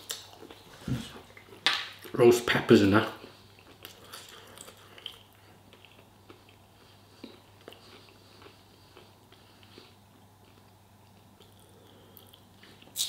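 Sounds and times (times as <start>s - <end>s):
faint chewing: 3.2s - 13.0s.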